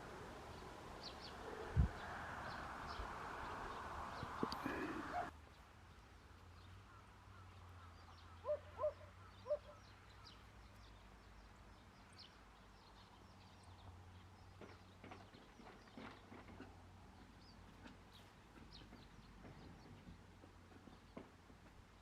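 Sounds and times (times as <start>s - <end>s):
small birds chirping faintly: 0.0s - 22.0s
bird honking calls: 6.9s - 9.8s.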